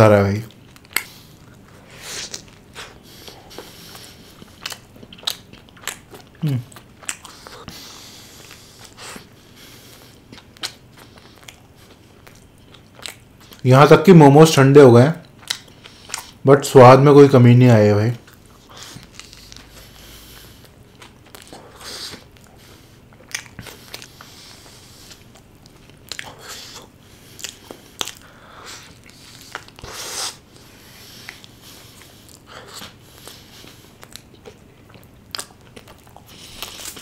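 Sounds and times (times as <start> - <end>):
person chewing burger: 0.4 - 13.6, 15.2 - 16.4, 18.2 - 37.0.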